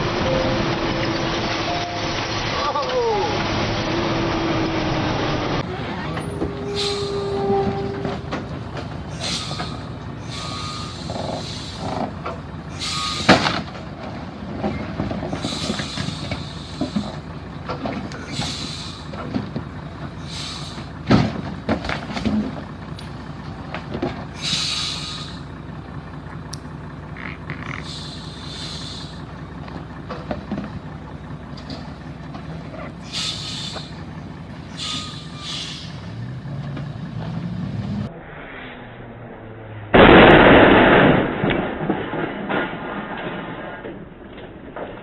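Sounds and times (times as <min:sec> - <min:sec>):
heavy truck engine running: 0:00.0 - 0:38.2
short hisses: 0:09.2 - 0:11.9, 0:12.7 - 0:13.4, 0:15.4 - 0:17.2, 0:18.3 - 0:19.1, 0:20.2 - 0:20.9, 0:24.4 - 0:25.4, 0:27.7 - 0:29.2, 0:33.0 - 0:34.0, 0:34.8 - 0:36.1.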